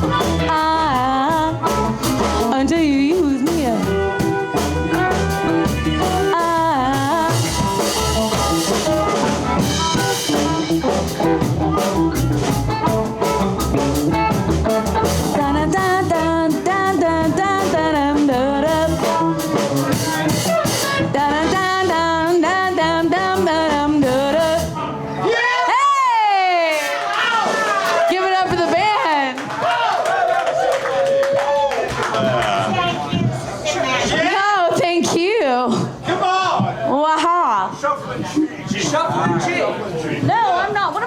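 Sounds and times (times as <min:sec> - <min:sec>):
bending electric guitar lead: 0:00.0 - 0:25.2
live blues band playing: 0:00.0 - 0:29.5, 0:31.1 - 0:36.0.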